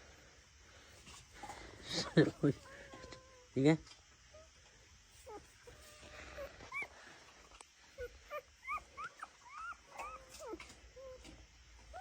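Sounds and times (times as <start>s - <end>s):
puppies whimpering: 5.2s - 7.1s, 7.9s - 12.0s.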